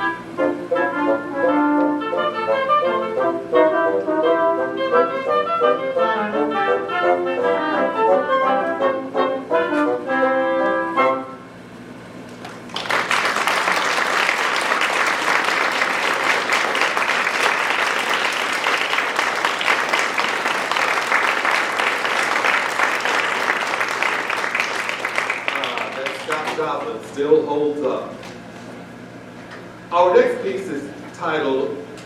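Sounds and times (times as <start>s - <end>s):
audience applause: 12.4s - 26.9s.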